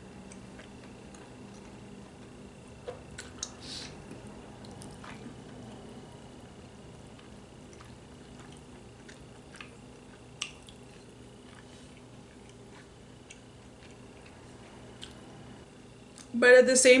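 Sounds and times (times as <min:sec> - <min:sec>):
low steady hum: 0:00.0 - 0:17.0
chewing and wet squishing: 0:00.2 - 0:02.4, 0:03.1 - 0:05.6, 0:07.0 - 0:15.2.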